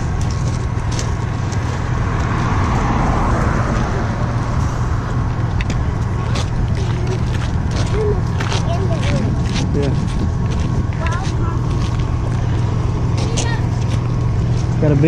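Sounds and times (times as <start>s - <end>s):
car passing on road: 0.0s - 8.3s
steady low rumble: 0.0s - 15.0s.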